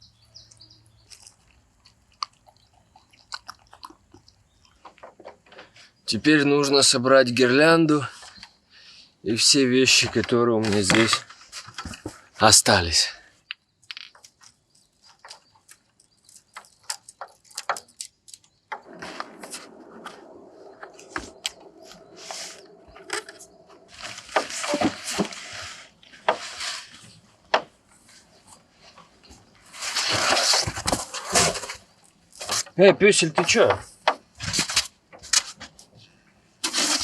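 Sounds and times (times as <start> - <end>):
rustling and crinkling: 0.5 - 6.0, 9.9 - 12.4, 13.8 - 37.0
clicks and knocks: 15.1 - 22.1.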